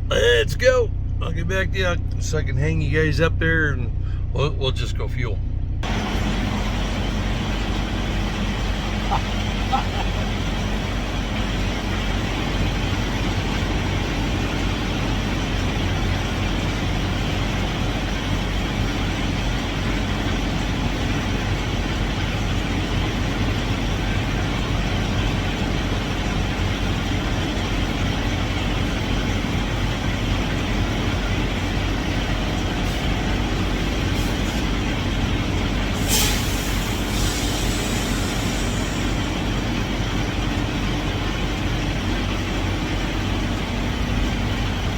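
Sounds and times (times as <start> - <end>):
truck diesel engine running: 0.0 - 44.9
air brake hiss: 36.0 - 39.3.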